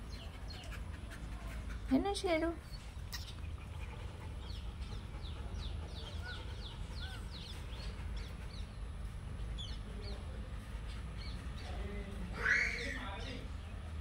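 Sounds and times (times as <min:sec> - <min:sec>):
small bird chirping: 0:02.6 - 0:03.8, 0:04.4 - 0:08.8.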